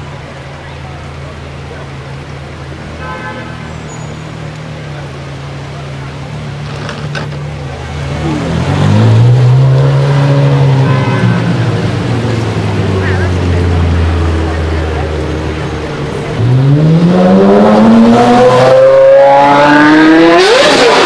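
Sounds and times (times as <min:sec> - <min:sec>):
car engine revving: 0:04.4 - 0:21.0.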